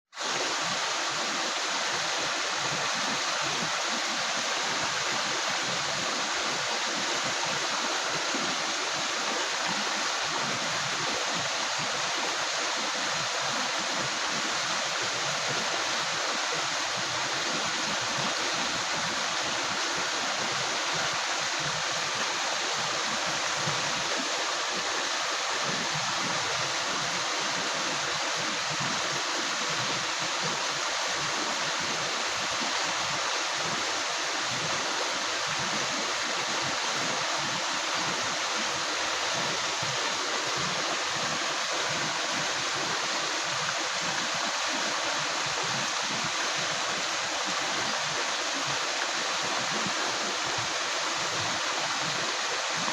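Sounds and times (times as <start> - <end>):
river water rushing over rocks: 0.2 - 52.9.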